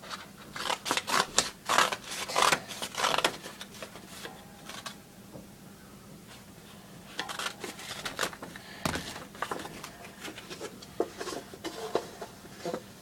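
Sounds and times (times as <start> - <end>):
scissors cutting paper: 0.0 - 3.9.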